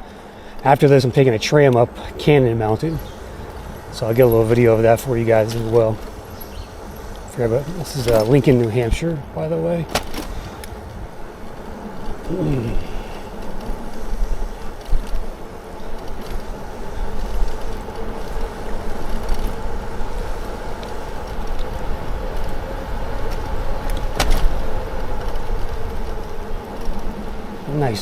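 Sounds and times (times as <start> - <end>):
tyres rolling on path: 0.0 - 28.0
wind on microphone: 1.3 - 9.4
electric motor hum: 1.8 - 9.6, 10.3 - 28.0.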